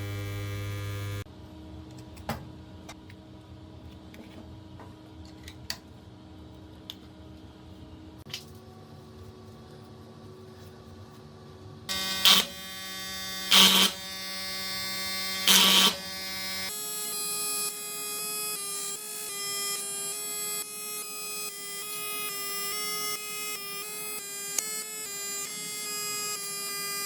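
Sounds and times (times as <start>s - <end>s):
loud buzz bursts: 0.0s - 1.2s, 11.9s - 16.8s
electrical buzz: 0.0s - 1.3s, 11.9s - 16.7s.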